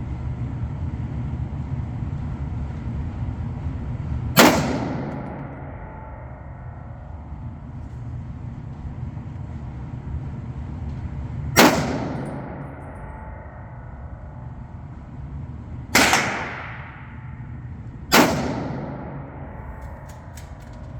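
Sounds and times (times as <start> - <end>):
rifle shots echoing: 4.4 - 6.1, 11.6 - 13.6, 15.9 - 20.7.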